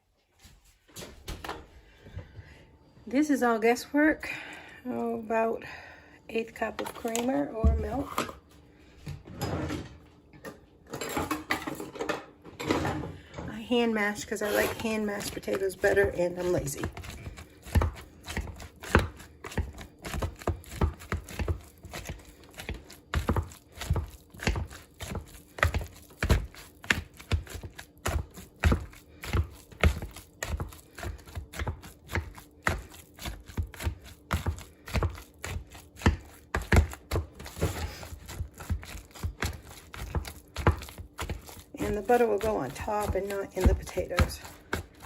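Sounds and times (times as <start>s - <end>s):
potatoes being mashed: 13.9s - 45.0s.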